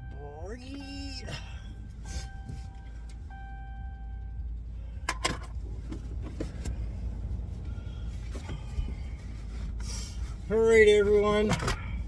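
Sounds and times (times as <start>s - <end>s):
warning chime: 0.0s - 4.4s.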